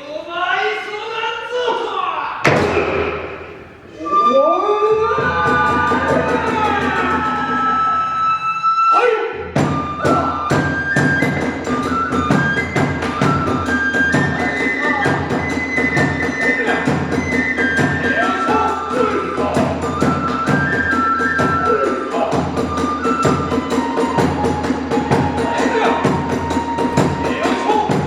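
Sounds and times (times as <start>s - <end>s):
taiko drum beat: 2.4s - 3.8s, 5.2s - 7.7s, 9.6s - 28.0s
bamboo flute melody: 3.8s - 28.0s
hand cymbals: 10.9s - 28.0s.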